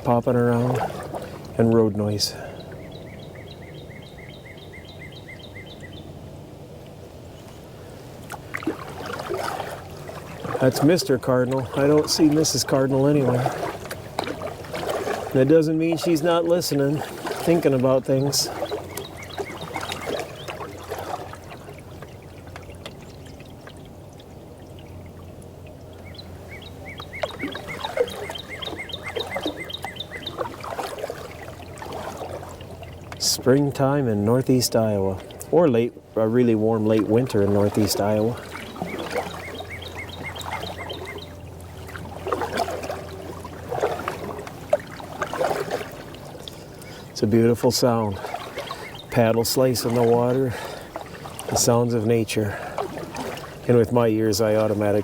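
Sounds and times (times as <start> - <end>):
paddle strokes gurgling in water: 0.0 - 3.9, 6.8 - 55.0
distant road noise hum: 0.0 - 55.0
bird singing slurred whistles: 2.5 - 6.1, 18.2 - 20.8, 26.0 - 30.6, 38.4 - 41.4, 48.1 - 49.2
cardinal singing whistled notes: 26.0 - 30.4, 38.6 - 41.3.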